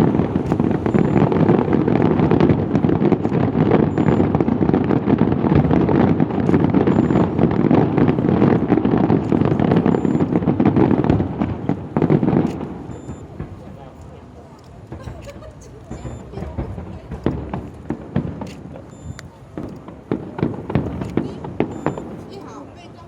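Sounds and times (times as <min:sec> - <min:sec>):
fireworks rumbling and crackling: 0:00.0 - 0:23.0.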